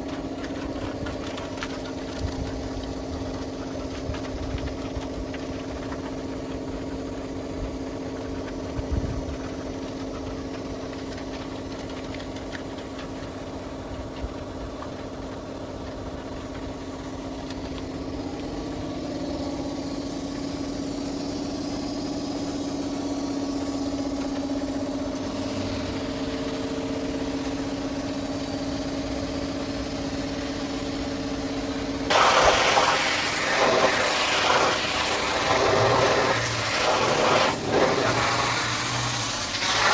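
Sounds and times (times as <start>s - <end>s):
engine running steadily: 0.0s - 39.9s
pressure washer spray hissing: 19.2s - 24.6s, 30.6s - 39.9s.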